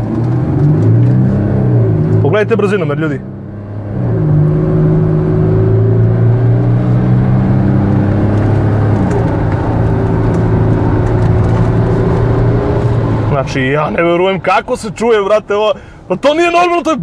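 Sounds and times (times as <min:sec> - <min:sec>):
car engine at full throttle: 0:00.0 - 0:14.4.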